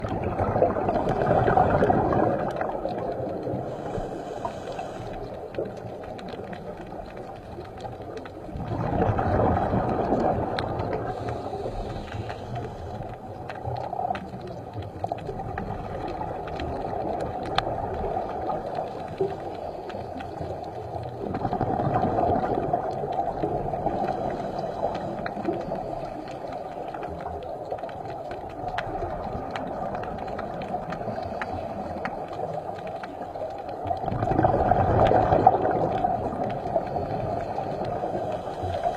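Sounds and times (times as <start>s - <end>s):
muffled rushing water: 0.0s - 38.9s
faint clicks: 1.8s - 38.9s.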